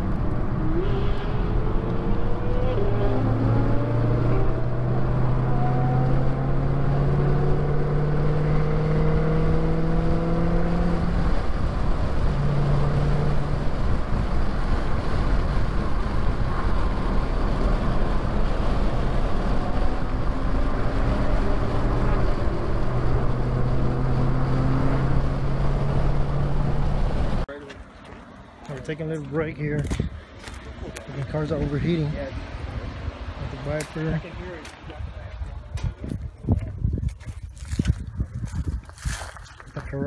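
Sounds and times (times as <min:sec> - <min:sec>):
car engine droning: 0:00.0 - 0:40.0
road and wind noise: 0:00.0 - 0:40.0.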